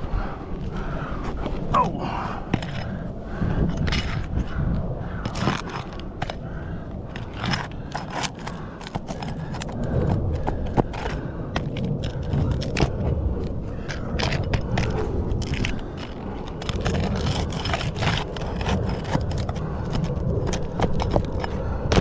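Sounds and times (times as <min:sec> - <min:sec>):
roof shingles being scraped: 0:07.1 - 0:13.0, 0:14.2 - 0:21.5.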